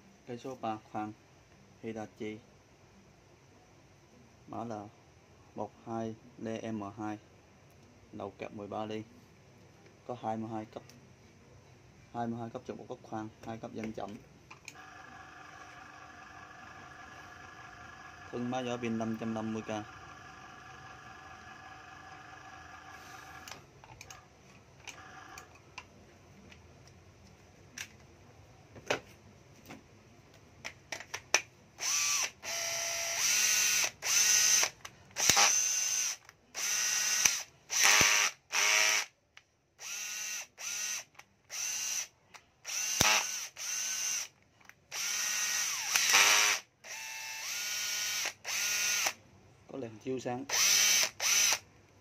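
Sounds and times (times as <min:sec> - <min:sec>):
cordless drill motor whining: 0:14.7 - 0:23.6, 0:31.8 - 0:39.1, 0:39.8 - 0:44.3, 0:44.9 - 0:49.2, 0:50.5 - 0:51.6.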